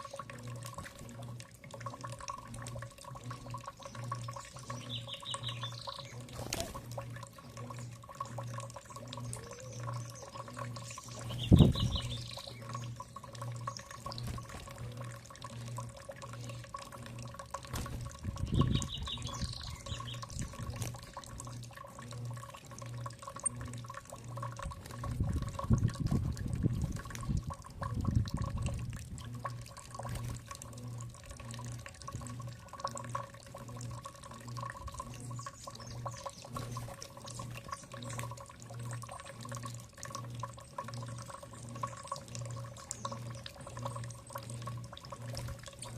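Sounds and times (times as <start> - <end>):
pulsing low hum: 0.0 - 45.9
water running: 0.0 - 45.9
bird trill: 3.8 - 6.7, 8.4 - 14.0, 18.4 - 20.7.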